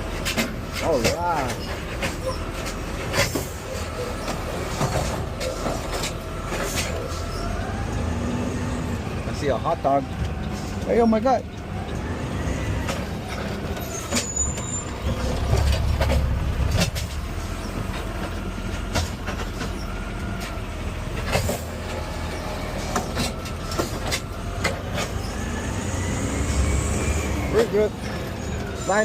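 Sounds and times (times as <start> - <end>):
truck knocks and rattles: 0.0 - 7.8, 12.8 - 26.5
garbage truck engine rumble: 0.0 - 29.0.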